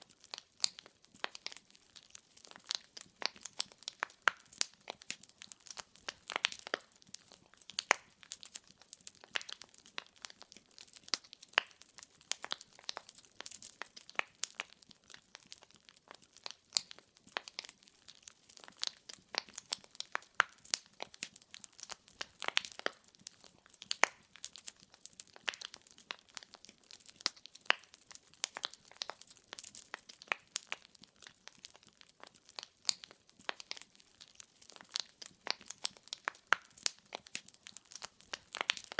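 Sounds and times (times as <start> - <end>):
logs crackling in fireplace: 0.0 - 38.9.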